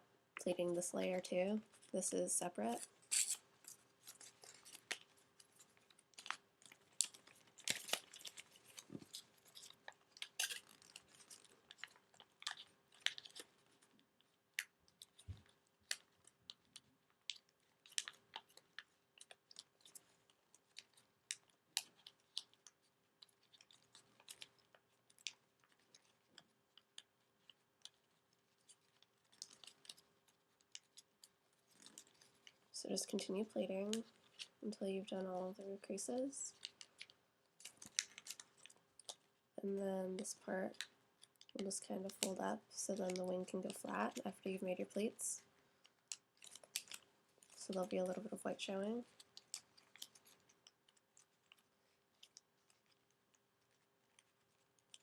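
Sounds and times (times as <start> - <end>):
paper crackling and tapping: 3.6 - 34.6, 36.5 - 39.3, 45.8 - 55.0.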